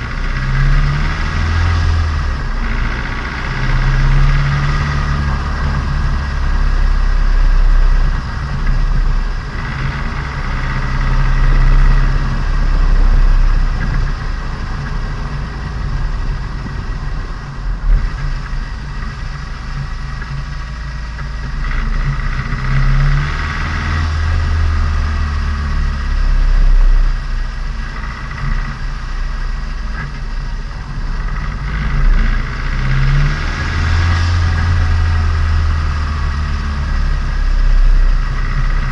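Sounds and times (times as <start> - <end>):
car engine and exhaust: 0.0 - 38.9.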